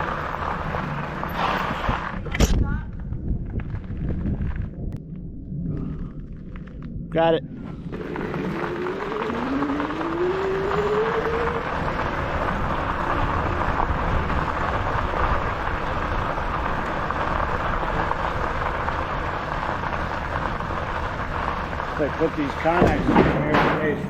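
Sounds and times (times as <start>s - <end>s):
wind and tyre noise: 0.0s - 24.0s
electric motor whine: 7.9s - 15.6s.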